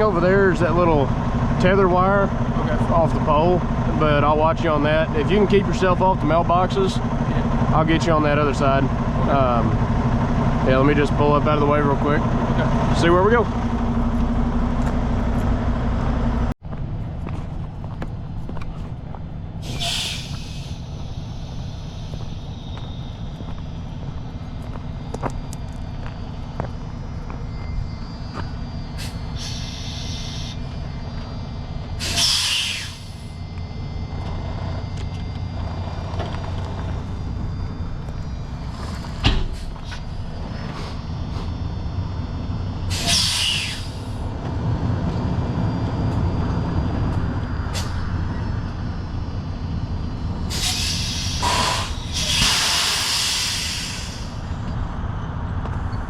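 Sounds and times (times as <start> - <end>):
diesel truck engine: 0.0 - 56.0
air brake hiss: 19.6 - 22.4, 29.0 - 30.6, 32.0 - 33.3, 42.9 - 44.2, 47.7 - 48.0, 50.5 - 54.5.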